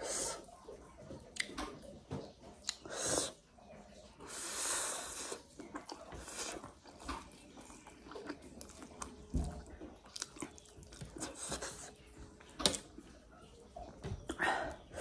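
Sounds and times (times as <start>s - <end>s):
mouth chewing noodles: 2.6s - 3.5s, 4.2s - 15.0s.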